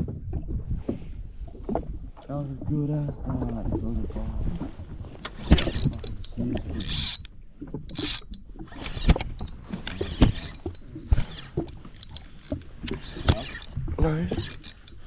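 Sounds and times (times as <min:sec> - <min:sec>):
reel clicks and knocks: 0:05.2 - 0:15.0
fishing reel winding: 0:05.5 - 0:07.3, 0:07.9 - 0:15.0.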